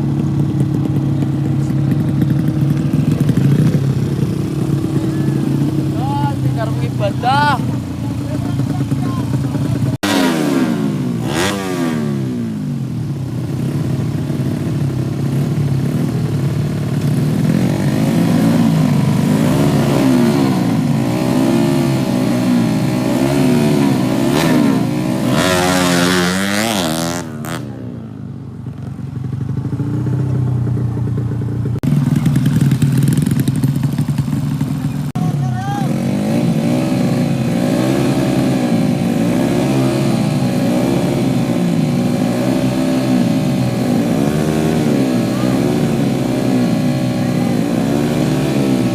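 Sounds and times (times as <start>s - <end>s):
motorcycle engines revving: 0.0s - 48.9s.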